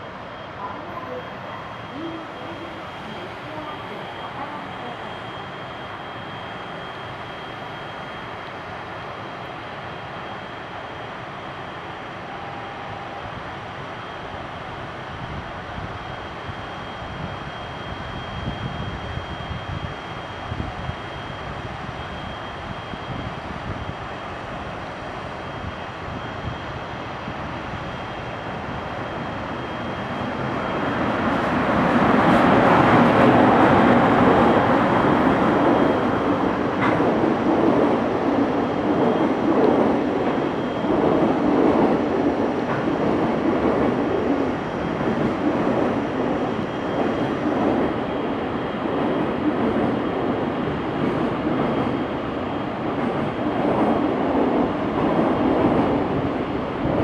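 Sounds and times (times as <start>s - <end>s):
train wheels on rails: 24.6s - 57.0s.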